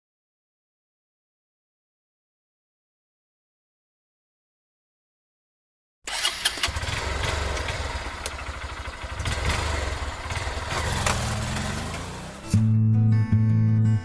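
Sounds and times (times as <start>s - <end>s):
motorcycle engine running: 6.1s - 12.7s.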